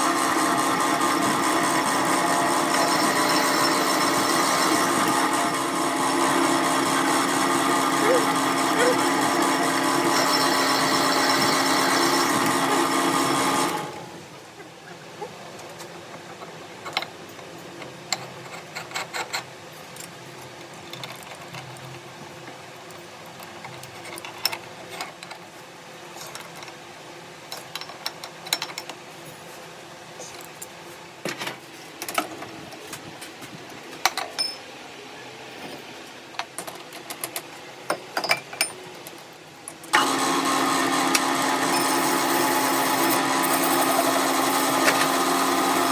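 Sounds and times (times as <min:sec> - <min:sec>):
workshop machine humming: 0:00.0 - 0:14.6, 0:39.8 - 0:45.9.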